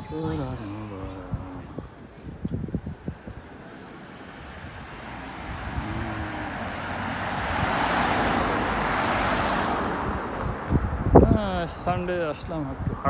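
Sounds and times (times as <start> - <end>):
car passing by: 3.8 - 11.2.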